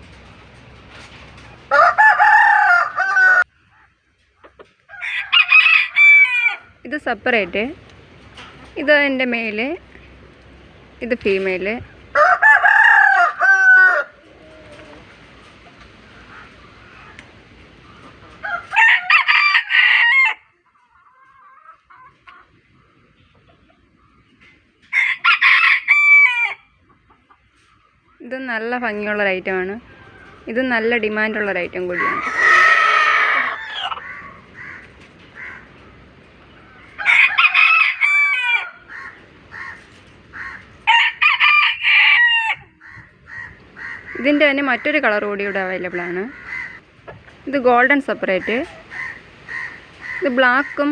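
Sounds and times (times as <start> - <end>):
rooster crowing: 1.7 - 3.5, 4.9 - 6.7, 12.1 - 14.9, 18.4 - 20.5, 24.9 - 26.7, 32.0 - 35.6, 36.7 - 39.8, 40.4 - 44.0
faint scattered calls: 28.9 - 40.8, 42.6 - 50.9.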